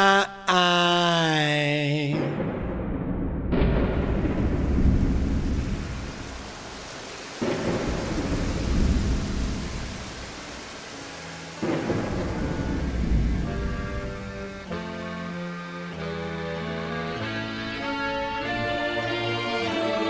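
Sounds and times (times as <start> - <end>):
thunder rolling: 2.2 - 14.9
rain falling: 3.7 - 20.0.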